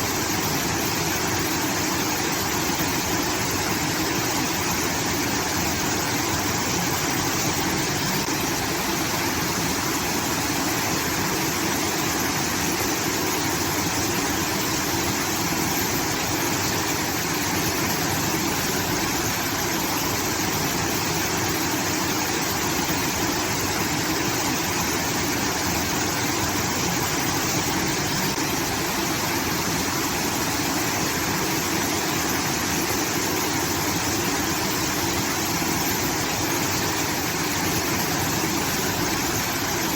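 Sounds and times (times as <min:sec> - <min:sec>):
water pouring and rushing: 0:00.0 - 0:39.9.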